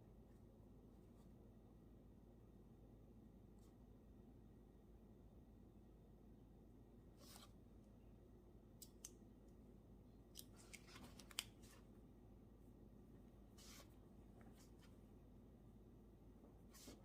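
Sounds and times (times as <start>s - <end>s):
small sharp clicks and snips: 8.8s - 9.2s, 10.3s - 11.7s.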